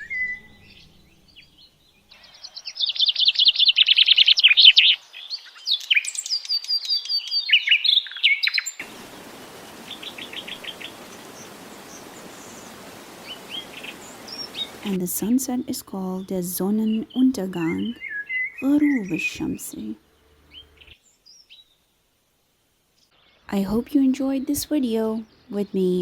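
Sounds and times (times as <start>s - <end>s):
songbird singing trills: 0.0s - 21.8s
steady hiss: 8.8s - 16.6s.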